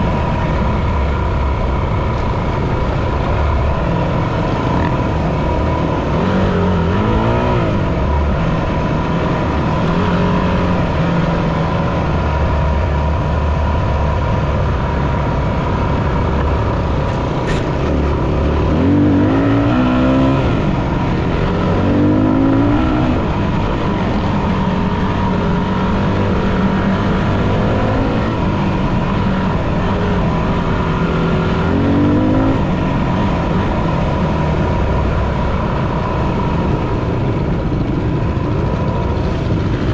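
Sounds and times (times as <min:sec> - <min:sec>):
dirt bike engine revving: 0:03.7 - 0:12.2, 0:16.6 - 0:24.0, 0:30.0 - 0:32.8.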